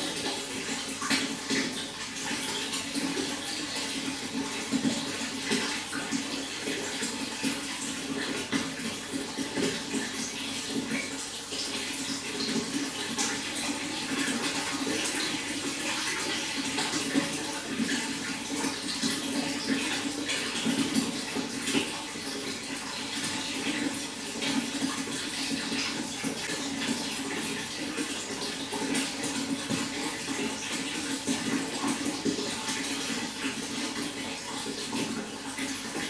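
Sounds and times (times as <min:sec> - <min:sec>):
running water: 0:00.0 - 0:36.0.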